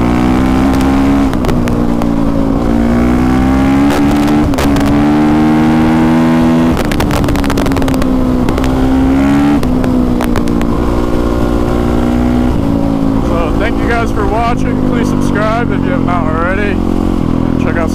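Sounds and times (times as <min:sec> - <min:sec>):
motorcycle engine revving: 0:00.0 - 0:17.9
sharp clicks and knocks: 0:06.7 - 0:08.8, 0:09.6 - 0:10.8.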